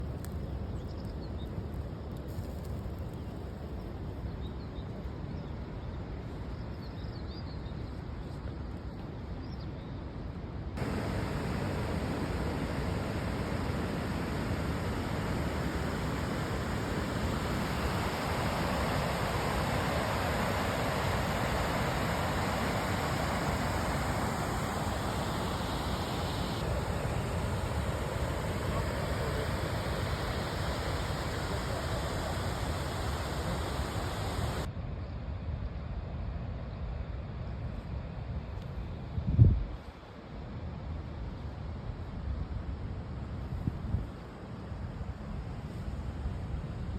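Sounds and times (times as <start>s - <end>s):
even rushing noise: 10.8s - 34.7s.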